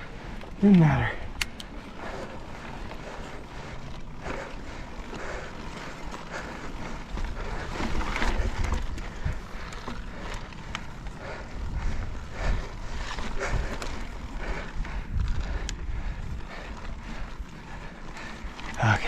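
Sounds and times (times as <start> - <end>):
mountain bike rolling over rock: 0.0 - 19.0
wind rumble on microphone: 7.1 - 18.2.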